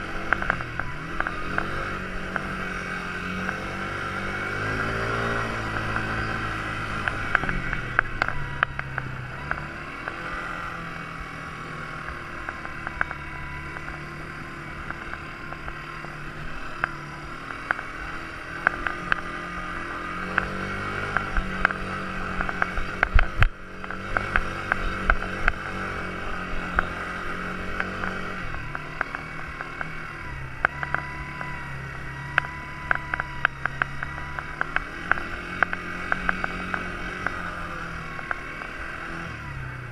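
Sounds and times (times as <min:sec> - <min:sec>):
quad bike engine revving: 0:00.0 - 0:39.9.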